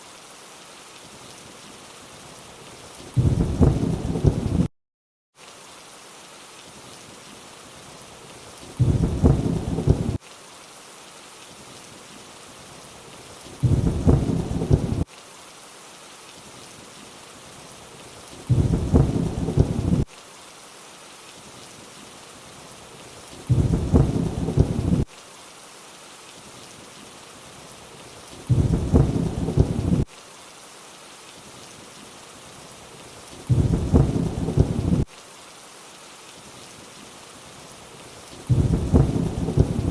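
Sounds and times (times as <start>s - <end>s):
steady rain hiss: 0.0s - 4.7s, 5.4s - 39.9s
low thunder rumble: 3.2s - 4.7s, 8.8s - 10.2s, 13.6s - 15.0s, 18.5s - 20.0s, 23.5s - 25.0s, 28.5s - 30.0s, 33.5s - 35.0s, 38.5s - 39.9s.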